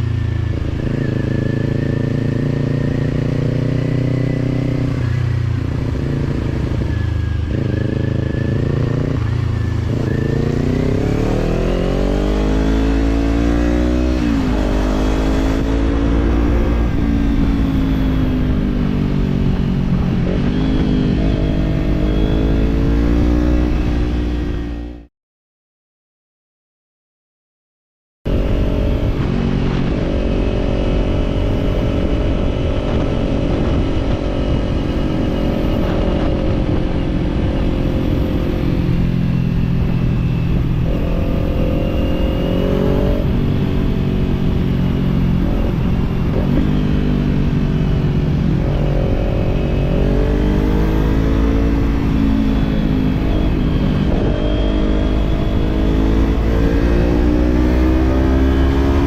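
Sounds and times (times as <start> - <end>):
motorcycle engine running: 0.0 - 25.0, 28.3 - 59.0.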